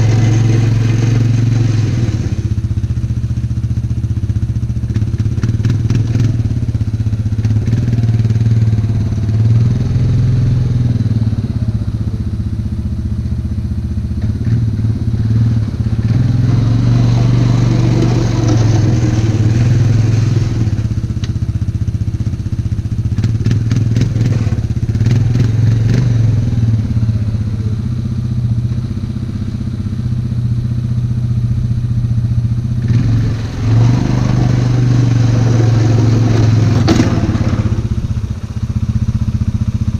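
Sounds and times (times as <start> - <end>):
plow blade scraping and clattering: 0.0 - 2.6, 14.2 - 21.4, 32.8 - 38.2
atv engine running under load: 0.0 - 39.9.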